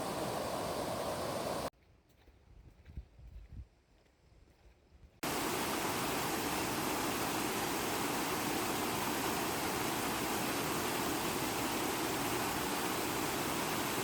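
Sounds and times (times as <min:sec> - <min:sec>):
stream water rushing: 0:00.0 - 0:01.7, 0:05.2 - 0:14.0.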